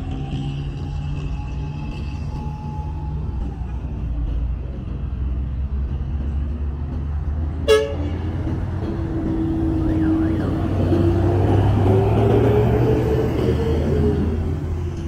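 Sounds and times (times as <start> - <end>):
street traffic engines: 0.0 - 15.0
vehicle engine speeding up: 4.0 - 15.0
vehicle horn toot: 7.6 - 8.2.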